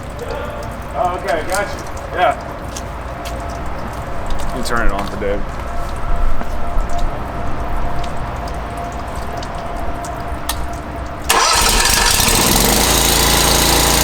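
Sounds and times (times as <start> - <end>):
pressure washer engine running: 11.3 - 14.0.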